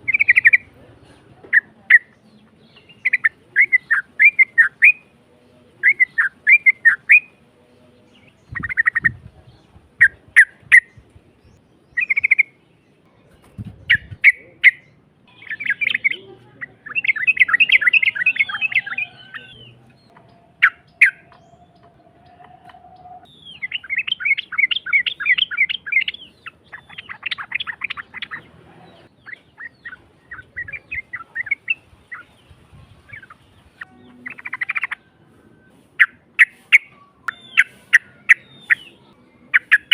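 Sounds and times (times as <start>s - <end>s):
bird singing rapid chirping notes: 0.0s - 0.7s, 1.5s - 39.9s.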